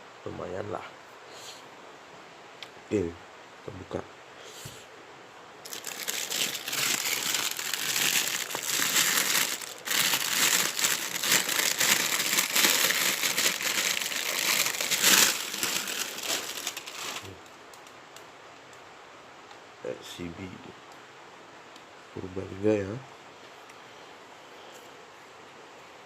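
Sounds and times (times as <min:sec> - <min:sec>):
packaging crinkling and rustling: 0:05.6 - 0:17.5.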